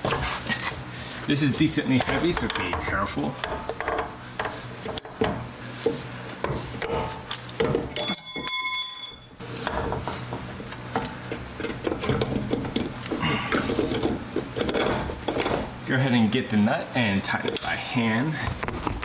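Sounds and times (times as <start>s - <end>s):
metal parts knocking and clinking: 7.6s - 9.4s
high steady ringing tone: 7.9s - 9.4s.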